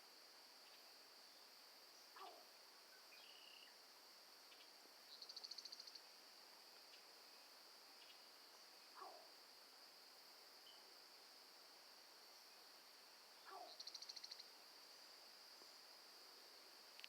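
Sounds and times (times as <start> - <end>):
night insects droning: 0.0 - 17.0.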